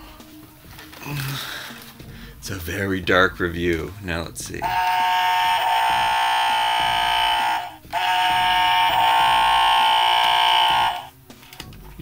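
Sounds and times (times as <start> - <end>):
buzzing electronic alarm tone: 4.6 - 11.1.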